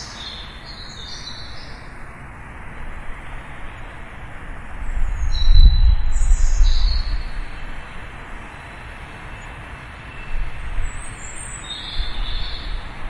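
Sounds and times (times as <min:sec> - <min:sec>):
birds chirping: 0:00.0 - 0:02.0
outdoor rumble and hiss: 0:00.0 - 0:13.0.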